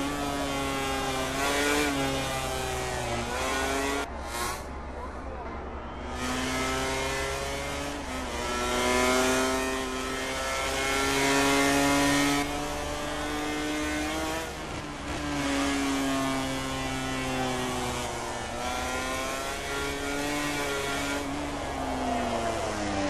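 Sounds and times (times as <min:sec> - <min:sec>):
racing motorcycle engine revving: 0:00.0 - 0:05.1, 0:05.9 - 0:23.0.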